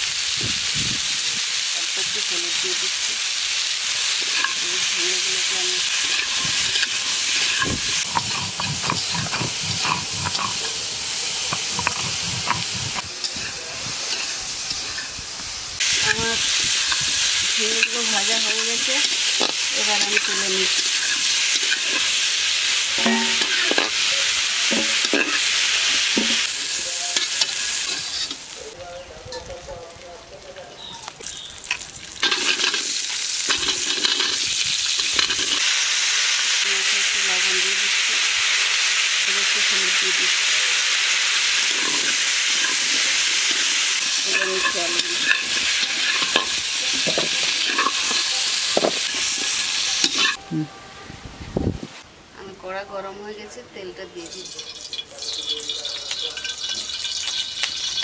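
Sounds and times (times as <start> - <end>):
vegetables sizzling in hot oil: 0.0 - 28.8, 30.8 - 50.4, 54.2 - 58.0
spatula scraping a pan: 5.8 - 15.1, 32.2 - 35.6, 41.6 - 50.4.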